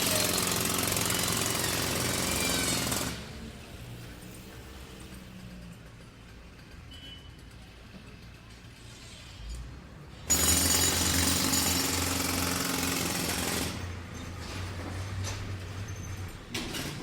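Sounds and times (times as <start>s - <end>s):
jackhammer breaking ground: 0.0s - 3.4s, 10.3s - 13.9s
construction site background: 0.0s - 17.0s.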